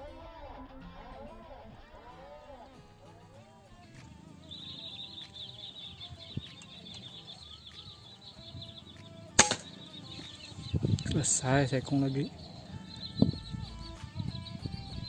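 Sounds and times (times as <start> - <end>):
air rifle shot: 9.4 - 10.4.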